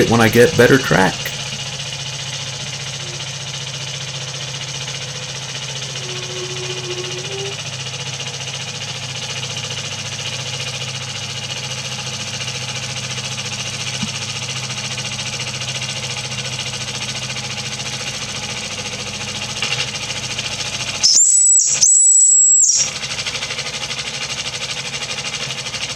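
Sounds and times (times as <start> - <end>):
steam engine cylinders chattering: 0.0 - 10.5
steam hissing: 2.7 - 8.7
high-pitched tone: 5.9 - 7.6, 21.0 - 22.9.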